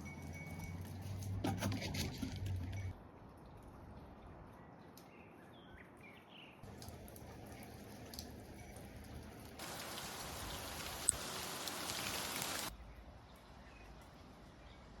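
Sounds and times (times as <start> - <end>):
hail and rain pattering: 6.7 - 12.7.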